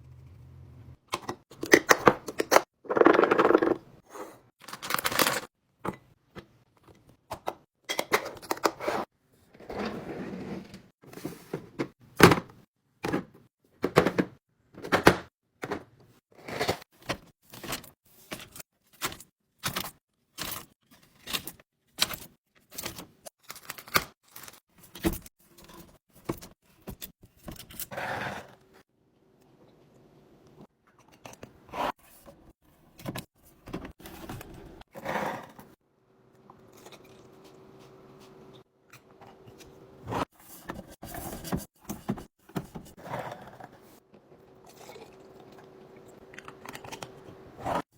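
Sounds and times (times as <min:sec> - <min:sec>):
snacks and containers handled: 0:04.6 - 0:06.0, 0:16.4 - 0:27.8, 0:36.4 - 0:47.9.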